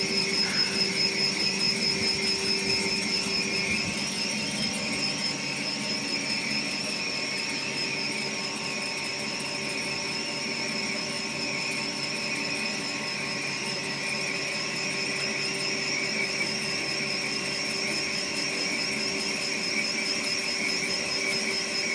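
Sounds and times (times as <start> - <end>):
machine hum: 0.0 - 7.6
turning machine whine: 0.0 - 21.9.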